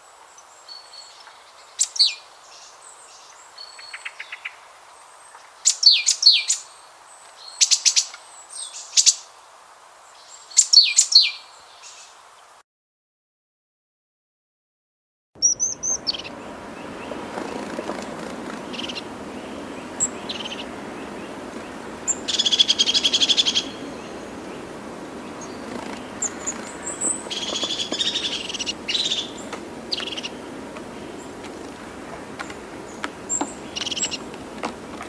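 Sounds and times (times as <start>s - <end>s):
background hiss: 0.0s - 12.6s, 15.4s - 35.0s
birds buzzy trills: 15.4s - 35.0s.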